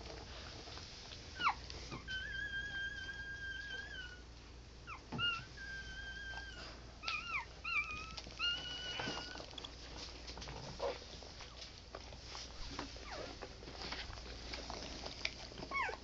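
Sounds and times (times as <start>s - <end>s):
puppies whining: 1.4s - 9.7s, 13.0s - 13.4s, 15.6s - 16.0s.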